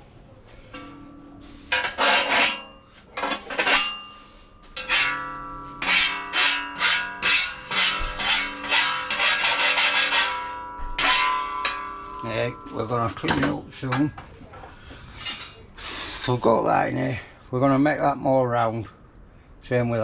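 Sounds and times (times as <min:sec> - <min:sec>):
file rasping on steel: 0:01.7 - 0:04.1, 0:04.8 - 0:11.9.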